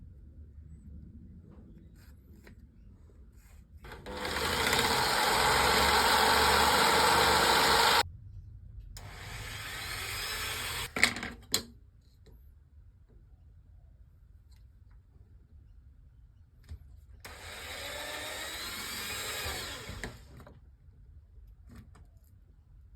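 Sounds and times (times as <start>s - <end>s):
jigsaw cutting: 3.9s - 8.0s, 9.0s - 10.9s, 17.3s - 20.3s.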